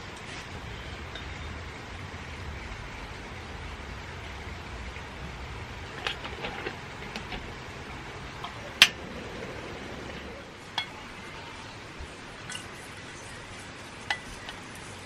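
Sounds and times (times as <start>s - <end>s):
steady background hiss: 0.0s - 15.0s
dishes and utensils clinking: 5.8s - 11.2s, 14.0s - 14.7s.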